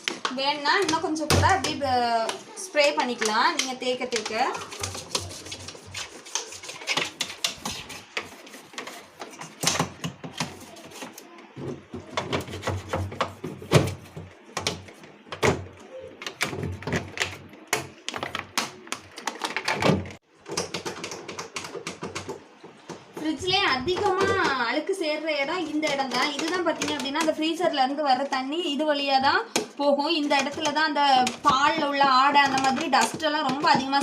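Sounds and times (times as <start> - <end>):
brush scrubbing plastic: 0.7 - 11.3, 11.9 - 15.2, 30.0 - 34.0.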